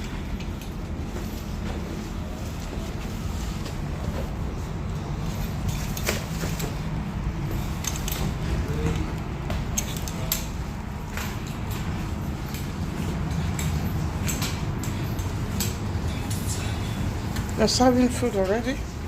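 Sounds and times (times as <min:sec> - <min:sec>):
ferry engines rumbling: 0:00.0 - 0:19.0
sharp clicks and clanks: 0:07.6 - 0:16.6.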